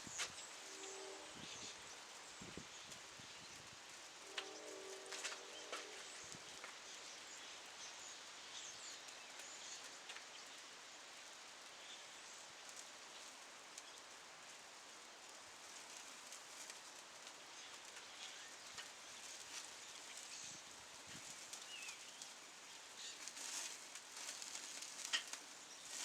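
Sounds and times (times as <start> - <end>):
campfire crackles and pops: 23.2 - 26.0.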